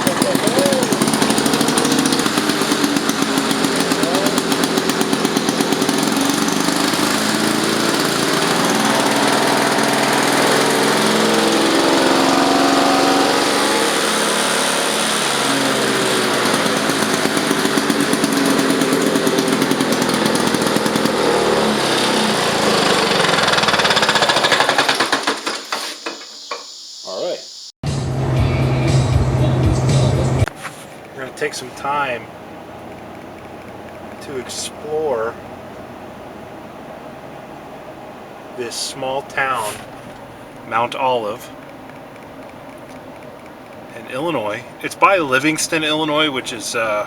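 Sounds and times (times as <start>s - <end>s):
two-stroke mower engine running: 0.0s - 26.2s, 28.1s - 47.0s.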